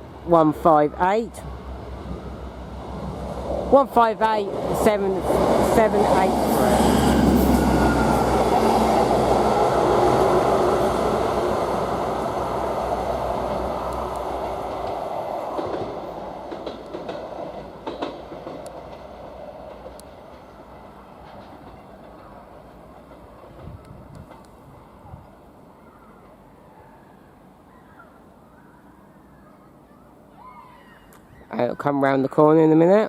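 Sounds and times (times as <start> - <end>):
diesel train engine running: 0.0 - 24.1
train wheels on track: 0.0 - 26.6.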